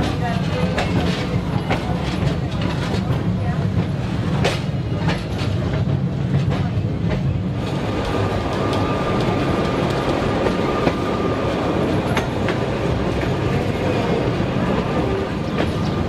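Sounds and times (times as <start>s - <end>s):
electric tram rumbling on rails: 0.0s - 16.0s.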